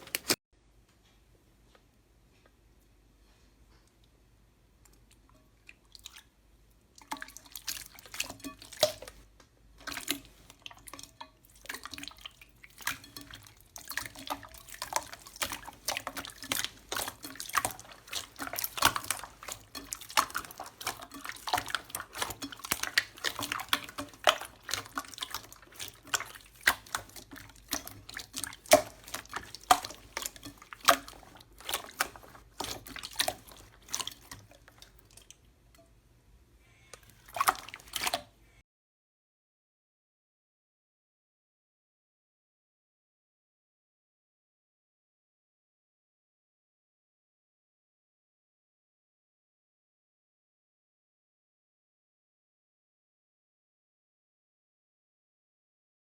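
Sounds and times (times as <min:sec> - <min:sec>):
slime squelching and popping: 0:00.0 - 0:00.4, 0:11.5 - 0:35.3.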